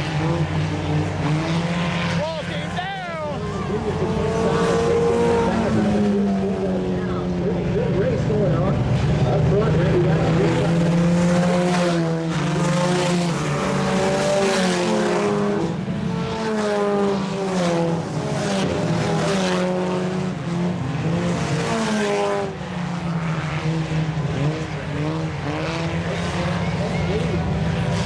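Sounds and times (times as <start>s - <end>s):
race car engines passing: 0.0s - 28.0s.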